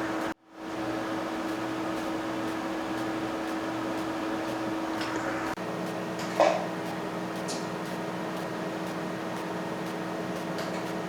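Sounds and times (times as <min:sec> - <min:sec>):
cooling fan hum: 0:00.0 - 0:11.0
faint high ticks: 0:01.5 - 0:05.2.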